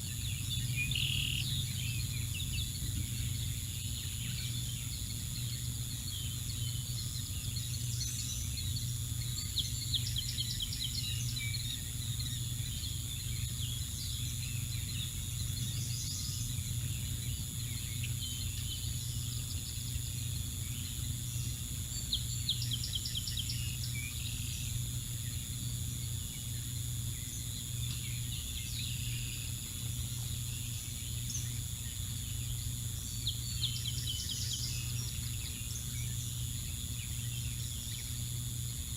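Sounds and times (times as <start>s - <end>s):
bird trill: 0.0s - 24.8s
small birds chirping: 0.0s - 38.9s.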